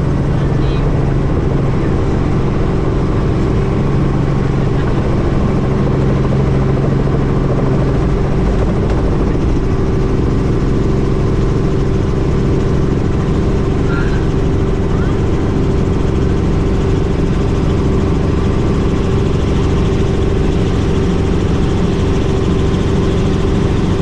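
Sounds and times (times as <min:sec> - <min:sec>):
helicopter engine and rotor: 0:00.0 - 0:24.0.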